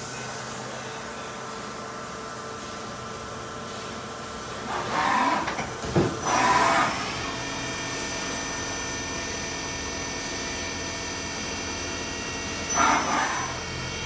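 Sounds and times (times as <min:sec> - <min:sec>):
lathe running with whining tones: 0:06.2 - 0:14.0.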